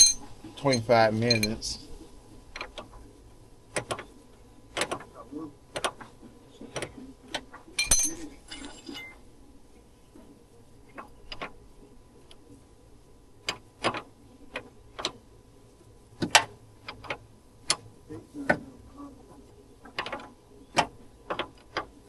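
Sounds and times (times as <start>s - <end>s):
metallic clinks of hand tools: 0.0s - 1.6s.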